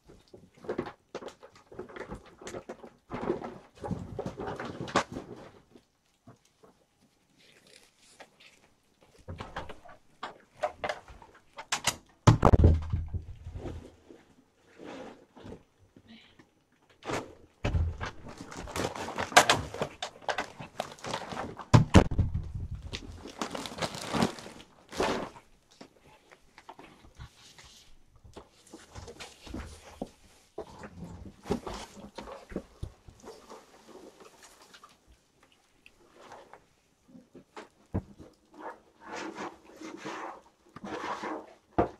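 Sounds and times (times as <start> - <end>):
kittens eating and moving about: 0.0 - 41.9
knocks and clatters: 9.3 - 13.8, 17.6 - 23.2
heavy thump: 17.6 - 18.2.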